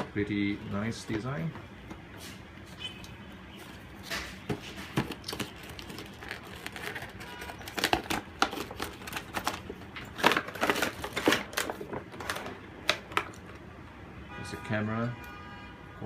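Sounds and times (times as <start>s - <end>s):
cardboard and plastic packaging handled: 3.5s - 13.7s.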